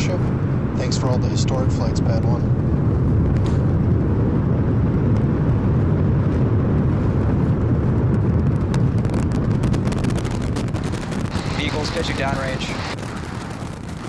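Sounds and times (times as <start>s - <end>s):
deep rocket engine rumble: 0.0s - 14.0s
sharp crackles: 3.1s - 14.0s.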